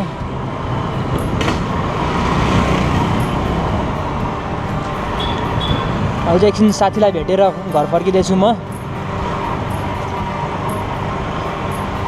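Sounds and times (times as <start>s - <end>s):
motor scooter riding through traffic: 0.0s - 12.0s
short high tones: 3.0s - 12.0s.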